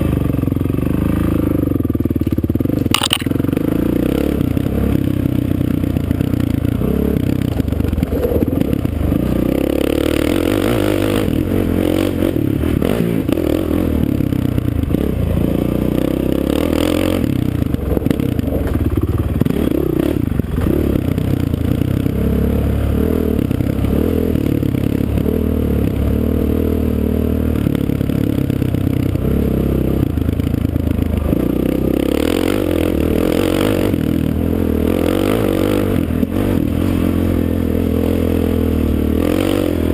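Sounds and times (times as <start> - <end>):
clatter: 2.0 - 3.4, 7.4 - 9.4
motocross engine revving: 6.2 - 27.4.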